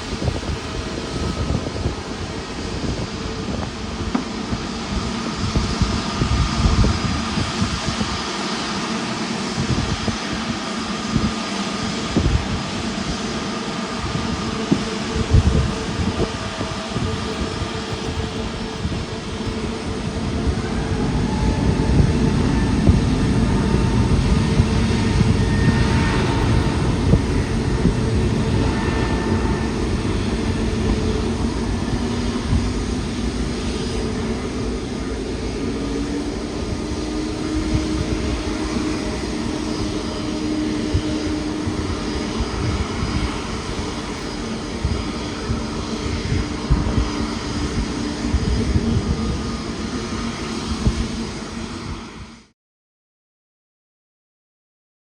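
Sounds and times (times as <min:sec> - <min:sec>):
jet engines rumbling and whining: 0:00.0 - 0:52.6.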